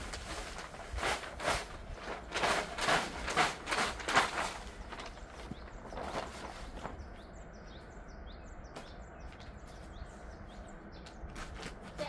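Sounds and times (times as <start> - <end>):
faint rustles: 0.0 - 7.3
small bird chirping: 4.6 - 12.0.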